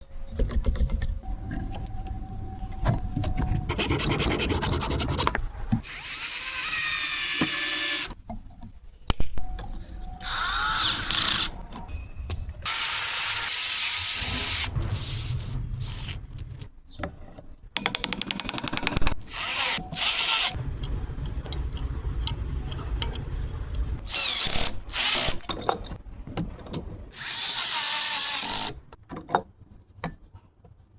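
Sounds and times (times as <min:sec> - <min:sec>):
electric power tool whining: 0:05.8 - 0:08.2.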